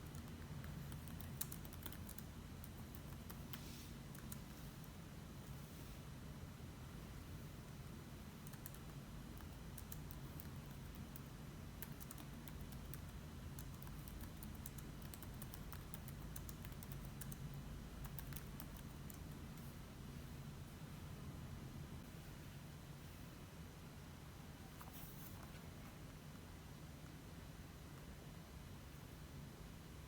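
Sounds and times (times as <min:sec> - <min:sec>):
keyboard typing clicks: 0:00.0 - 0:04.5, 0:08.4 - 0:19.7
low steady hum: 0:00.0 - 0:30.0.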